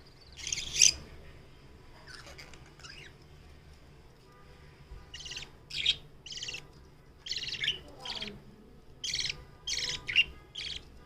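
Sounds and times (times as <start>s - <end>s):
budgerigars chirping: 0.2s - 1.0s, 2.1s - 3.2s, 5.1s - 8.3s, 9.0s - 10.9s.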